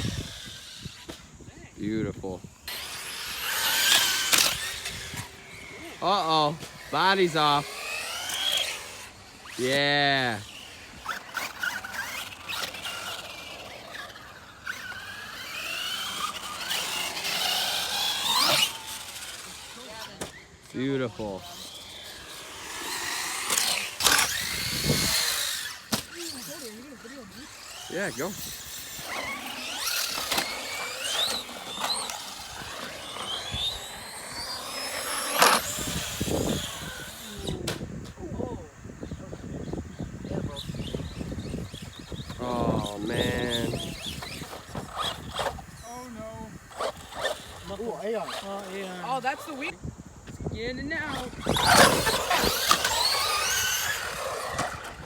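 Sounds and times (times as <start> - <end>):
rc car motors whining: 0.0 - 55.0
rc cars knocking on ground: 22.6 - 26.5, 51.1 - 55.0.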